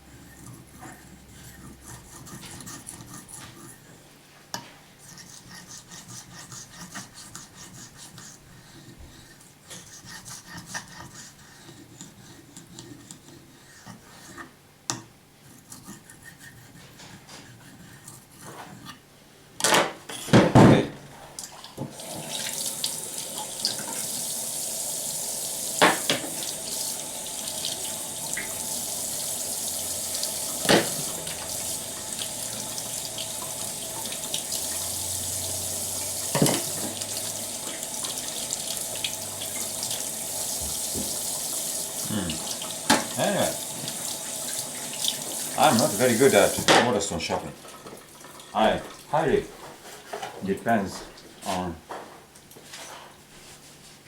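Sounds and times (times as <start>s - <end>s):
knife scraping on whetstone: 0.0s - 4.0s, 5.0s - 14.6s, 15.4s - 19.0s
water tap running: 21.4s - 49.3s.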